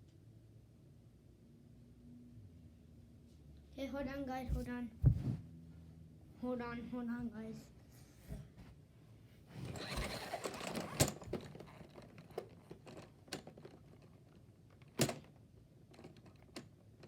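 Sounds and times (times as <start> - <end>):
sharp clicks and knocks: 10.0 - 15.3.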